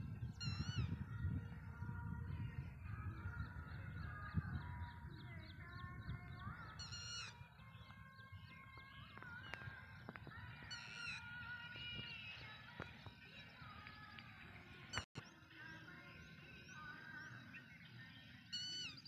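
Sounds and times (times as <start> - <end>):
wind rumble on microphone: 0.0 - 15.0
birds chirping: 0.0 - 19.0
sharp ringing bird call: 6.8 - 7.4.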